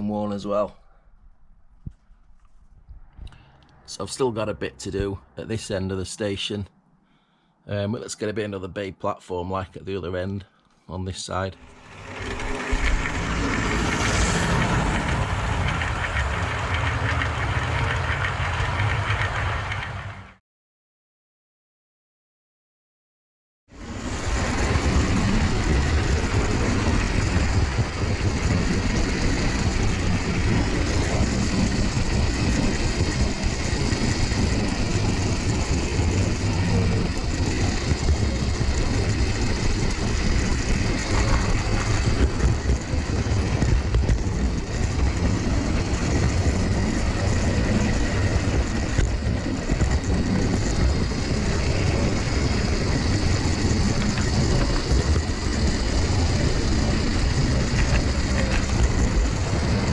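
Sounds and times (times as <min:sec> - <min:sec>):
model train running on track: 0:11.3 - 0:20.4, 0:23.8 - 0:59.9.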